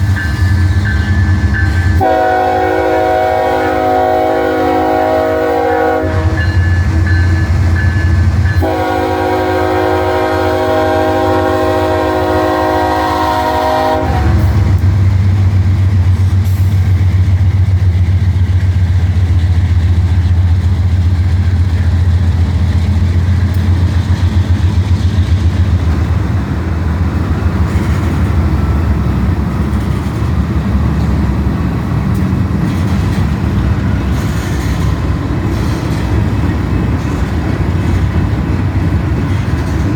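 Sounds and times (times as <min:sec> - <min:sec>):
diesel locomotive engine rumble: 0:00.0 - 0:39.9
locomotive air horn blast: 0:02.0 - 0:06.6, 0:08.6 - 0:14.7.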